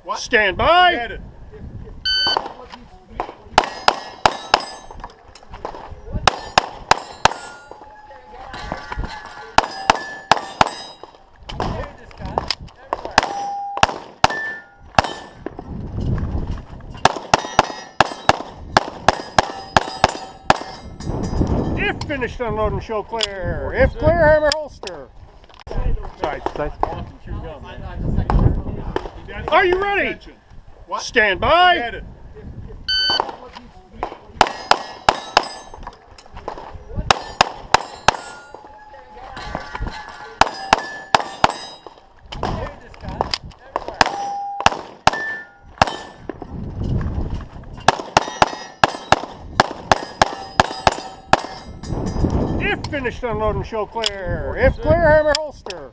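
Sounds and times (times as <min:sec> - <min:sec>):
pistol shots: 0:03.2 - 0:04.9, 0:05.7 - 0:07.7, 0:09.6 - 0:11.8, 0:12.9 - 0:15.4, 0:17.0 - 0:20.8, 0:34.0 - 0:35.9, 0:37.1 - 0:38.6, 0:40.4 - 0:42.6, 0:43.8 - 0:46.3, 0:47.9 - 0:51.7
steel plates ringing: 0:03.7 - 0:05.0, 0:06.3 - 0:11.2, 0:13.2 - 0:15.4, 0:17.4 - 0:18.4, 0:19.1 - 0:21.8, 0:34.5 - 0:35.8, 0:37.1 - 0:42.0, 0:44.0 - 0:46.2, 0:48.2 - 0:49.2, 0:49.9 - 0:52.6.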